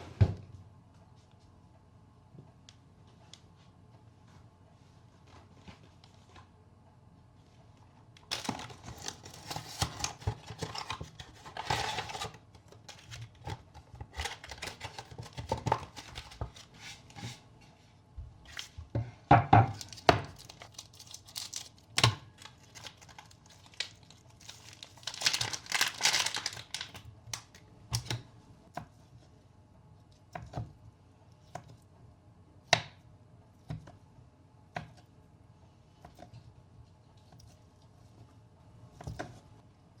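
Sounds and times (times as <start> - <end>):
packaging tearing and crinkling: 8.3 - 17.0, 19.8 - 27.6.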